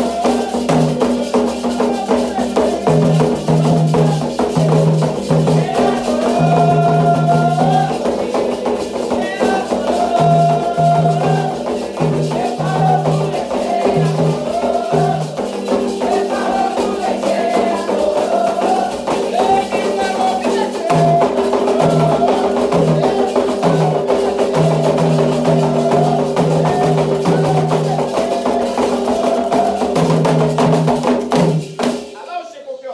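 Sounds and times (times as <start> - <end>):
hand drums: 0.0 - 32.3
voices singing: 0.0 - 32.9.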